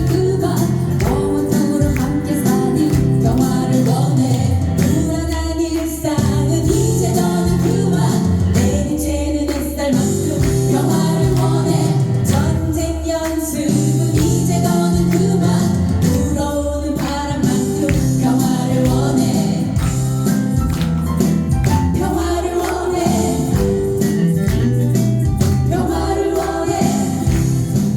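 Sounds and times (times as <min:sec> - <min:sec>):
people singing: 0:00.0 - 0:27.9
live band playing: 0:17.0 - 0:27.9.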